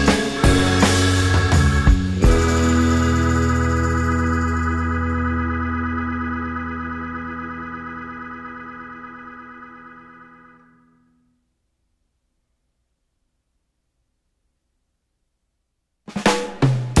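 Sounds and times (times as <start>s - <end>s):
held music chord: 0.0s - 10.4s.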